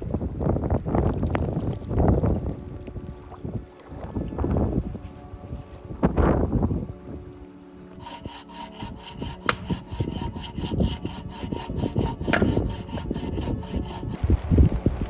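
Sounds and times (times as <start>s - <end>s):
hand saw cutting wood: 8.0s - 14.2s.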